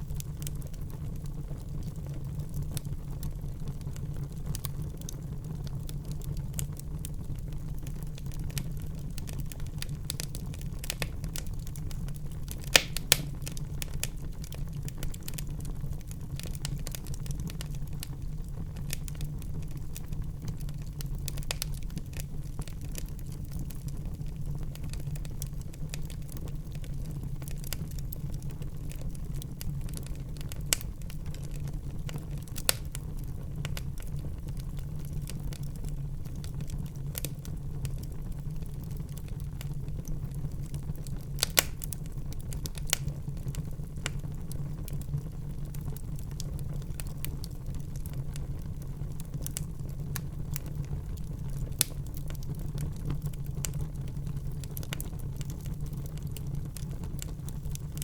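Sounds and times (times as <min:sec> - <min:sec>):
fire crackling: 0:00.0 - 0:58.0
fire flames rumbling: 0:00.0 - 0:58.0
sharp wood pops: 0:12.8 - 0:13.3.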